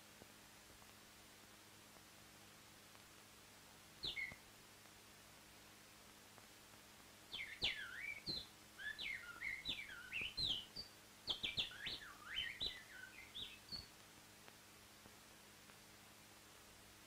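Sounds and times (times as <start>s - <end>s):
bird chirping: 4.0s - 4.4s, 7.3s - 14.0s.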